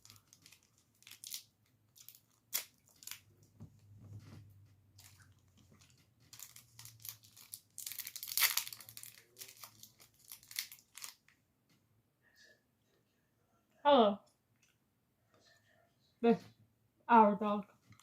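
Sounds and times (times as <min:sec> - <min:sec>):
plastic wrapper crinkling and tearing: 0:00.0 - 0:03.6, 0:05.0 - 0:11.4.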